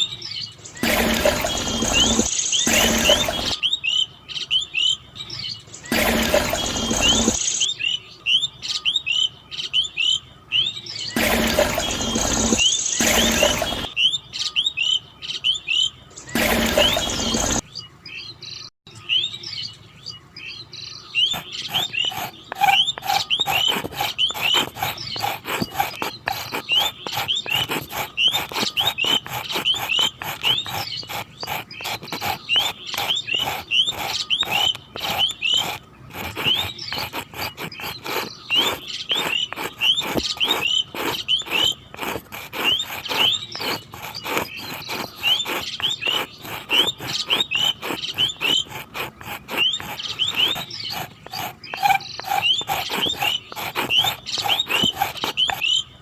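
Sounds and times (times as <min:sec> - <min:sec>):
small birds chirping: 0:00.0 - 0:56.0
fast clicking and rattling: 0:21.3 - 0:55.7.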